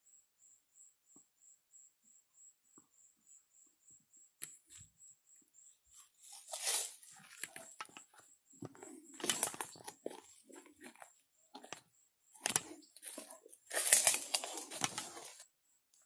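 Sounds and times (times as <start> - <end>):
footsteps crunching dry leaves: 6.2 - 7.7, 12.6 - 15.4.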